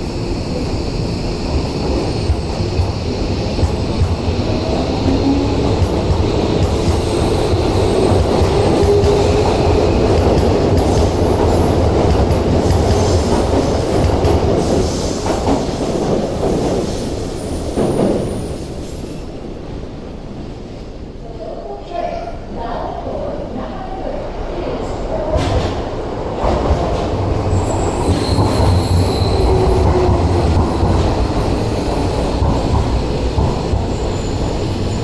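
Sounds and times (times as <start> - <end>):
train wheel clatter: 1.6 - 18.5, 25.2 - 35.0
wheels squealing on rails: 27.2 - 35.0.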